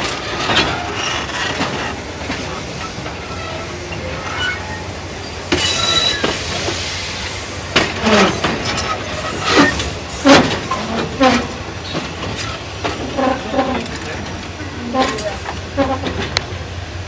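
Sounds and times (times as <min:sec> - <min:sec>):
train wheels rumbling on rails: 0:00.0 - 0:17.0
high wheel squeal: 0:00.6 - 0:13.9.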